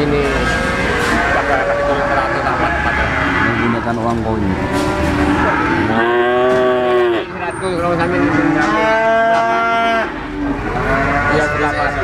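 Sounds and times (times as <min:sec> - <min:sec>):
cattle mooing: 0:00.3 - 0:07.4, 0:08.0 - 0:12.0.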